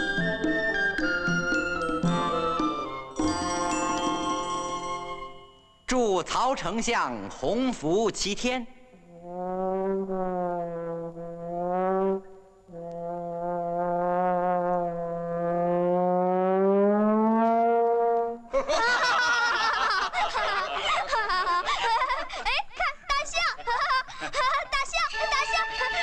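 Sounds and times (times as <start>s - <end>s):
long brass horn notes: 9.2s - 18.5s.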